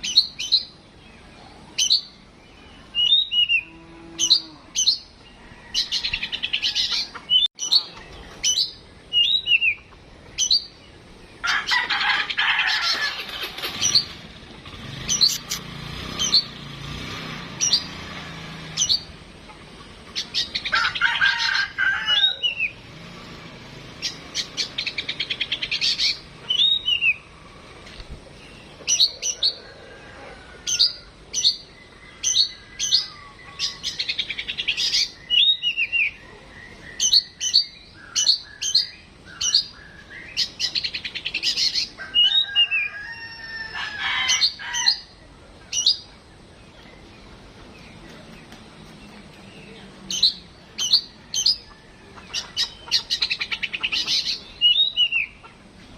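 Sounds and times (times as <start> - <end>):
bird singing trills and whistles: 0.0 - 0.8, 1.8 - 5.3, 6.0 - 10.8, 15.0 - 15.6, 24.0 - 27.3, 30.7 - 42.9, 52.3 - 55.4.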